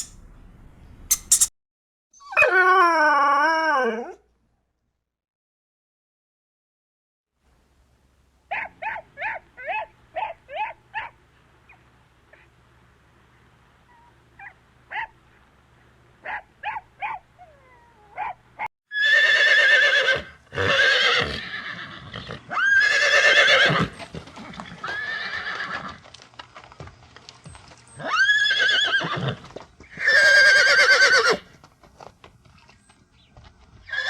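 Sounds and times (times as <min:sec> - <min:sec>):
horse neighing loudly: 0:18.9 - 0:26.0, 0:28.0 - 0:31.5.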